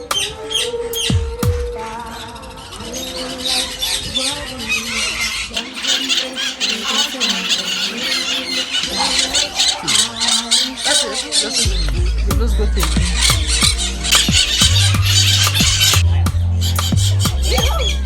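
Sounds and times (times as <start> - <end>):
parrots screeching and squawking: 1.8 - 12.2, 12.8 - 16.0, 16.6 - 18.0.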